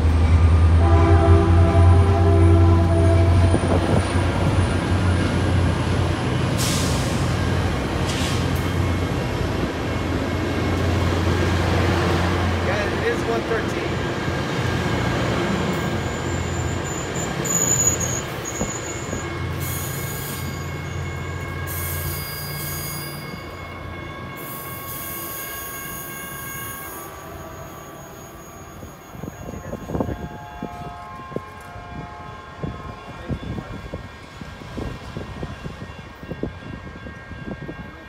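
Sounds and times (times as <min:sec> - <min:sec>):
passenger train rumbling past: 0:00.0 - 0:38.0
wheels squealing: 0:15.8 - 0:20.9.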